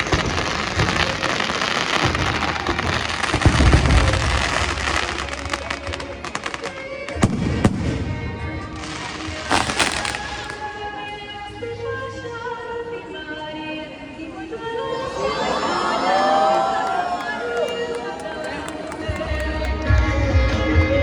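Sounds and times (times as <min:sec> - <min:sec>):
fireworks crackling and popping: 0:00.0 - 0:11.0
music: 0:00.0 - 0:15.2, 0:17.6 - 0:21.0.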